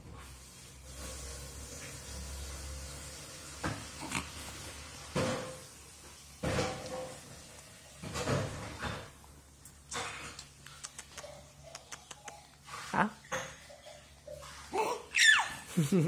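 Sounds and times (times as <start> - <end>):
baby grunting: 4.0 - 4.4
baby sucking fingers: 9.9 - 12.6.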